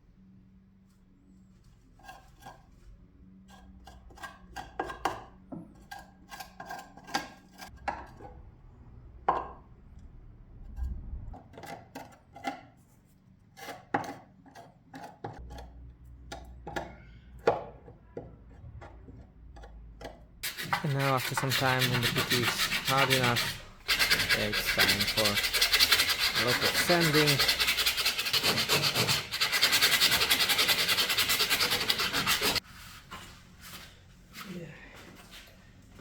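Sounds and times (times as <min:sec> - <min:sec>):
spreader scraping filler: 0:20.4 - 0:32.6.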